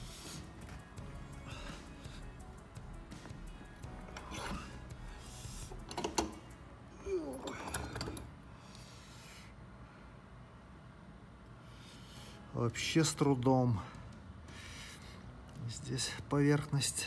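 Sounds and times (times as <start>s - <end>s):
metal parts clinking: 7.2s - 8.3s.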